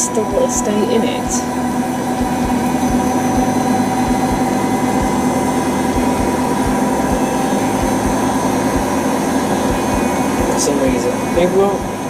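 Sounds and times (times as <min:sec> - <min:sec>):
washing machine spinning: 0:00.0 - 0:12.0
low thumps: 0:02.1 - 0:09.0.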